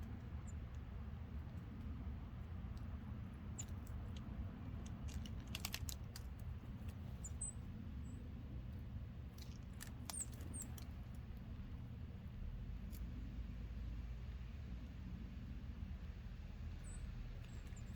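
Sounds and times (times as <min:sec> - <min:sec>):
small birds chirping: 0:00.0 - 0:05.3, 0:06.1 - 0:11.9, 0:16.6 - 0:17.9
birds pecking at seed: 0:00.0 - 0:14.1, 0:15.1 - 0:17.9
steady low rumble: 0:00.0 - 0:17.9.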